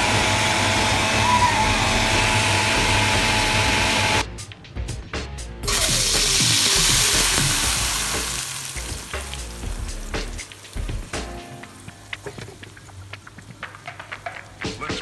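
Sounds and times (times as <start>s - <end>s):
paste sizzling in hot oil: 5.6s - 11.3s
oil crackling and spitting: 5.6s - 15.0s.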